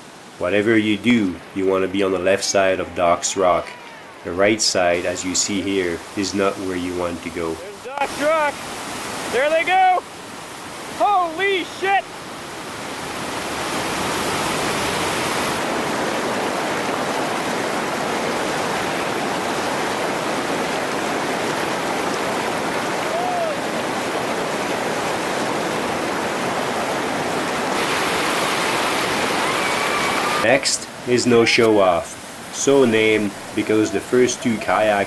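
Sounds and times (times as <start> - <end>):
rushing whitewater: 0.0 - 35.0
short voice call: 2.5 - 4.6.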